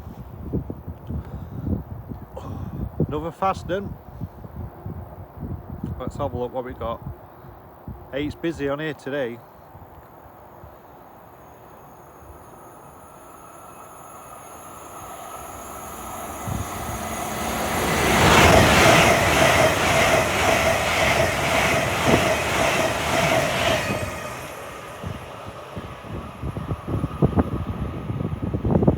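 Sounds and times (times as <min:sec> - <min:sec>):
train passing at speed: 0:09.2 - 0:28.9
train wheel beats: 0:11.8 - 0:28.9.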